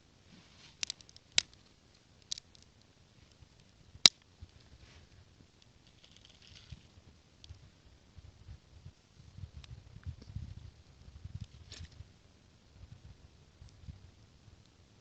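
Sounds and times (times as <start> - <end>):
faint rustling: 0.2 - 3.7, 4.5 - 7.7
twigs snapping: 0.7 - 2.7.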